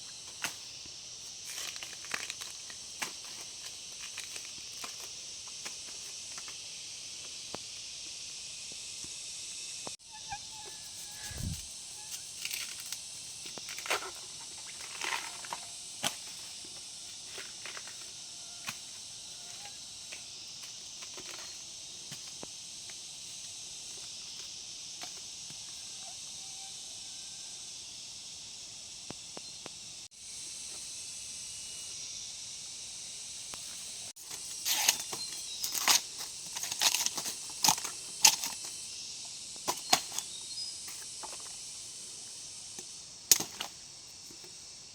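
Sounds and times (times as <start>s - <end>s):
insect drone: 0.0s - 44.9s.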